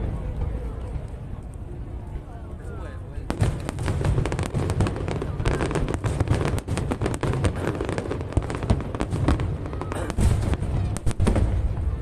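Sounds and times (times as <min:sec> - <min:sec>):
firework bangs and crackling: 0:03.2 - 0:12.0.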